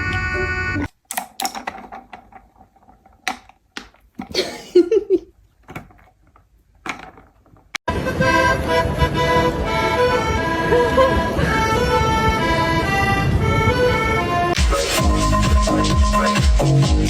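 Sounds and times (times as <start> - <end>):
music: 0.0 - 0.9, 7.9 - 17.0.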